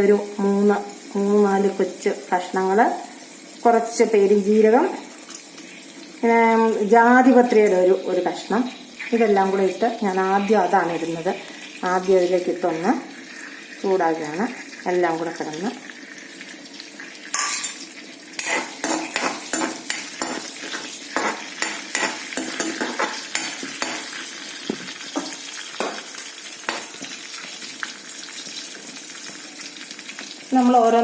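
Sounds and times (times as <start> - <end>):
spices sizzling in hot oil: 0.0 - 31.0
utensil scraping a pan: 17.4 - 24.3.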